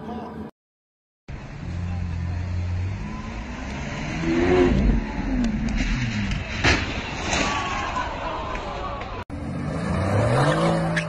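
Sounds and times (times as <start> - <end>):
sports car engine revving: 9.4 - 11.0.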